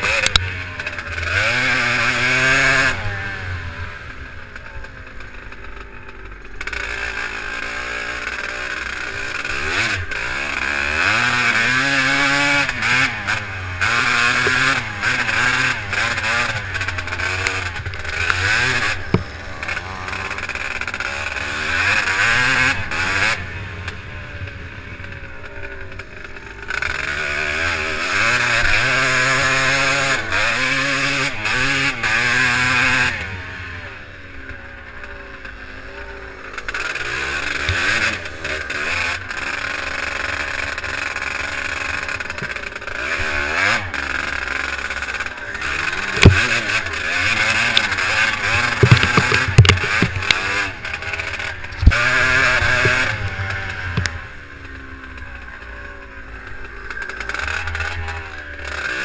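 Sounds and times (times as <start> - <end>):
motorbike engine revving: 0.0 - 59.0
sharp knocks: 19.0 - 19.4, 46.2 - 46.6, 48.8 - 50.5.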